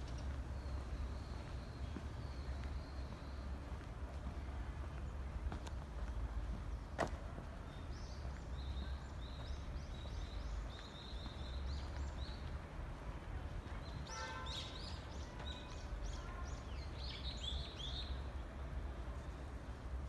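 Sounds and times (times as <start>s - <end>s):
small birds chirping: 0.0s - 5.8s, 7.6s - 12.6s.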